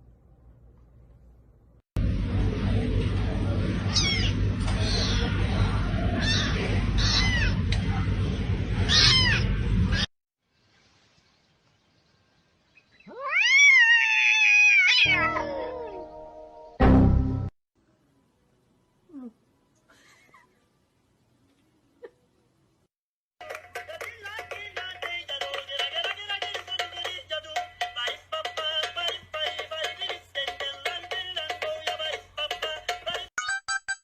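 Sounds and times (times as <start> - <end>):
noisy background: 2.0 - 10.1
cat meowing: 3.9 - 5.3, 6.2 - 7.6, 8.9 - 10.1, 13.1 - 16.0
cat yowling: 3.9 - 5.3, 6.2 - 7.6, 8.9 - 10.1, 13.1 - 16.1.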